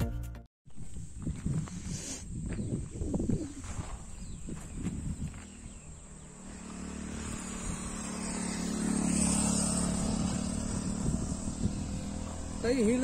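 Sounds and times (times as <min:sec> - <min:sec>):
vehicle engine running: 0:04.0 - 0:13.0.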